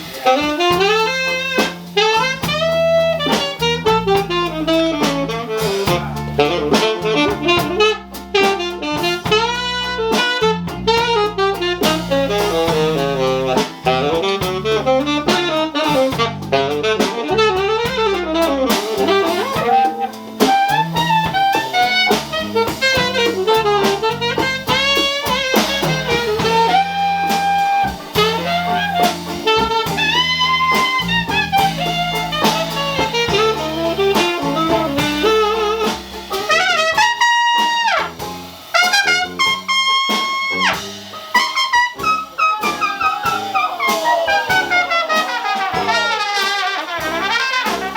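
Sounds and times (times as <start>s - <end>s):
jazz band playing: 0.0s - 47.9s
wind instrument solo: 0.0s - 47.9s.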